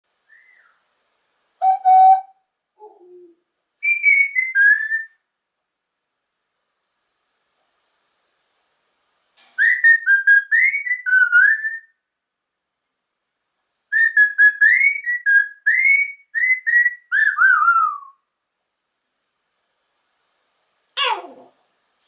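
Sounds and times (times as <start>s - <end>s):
person whistling: 0.3s - 0.8s, 1.6s - 2.3s.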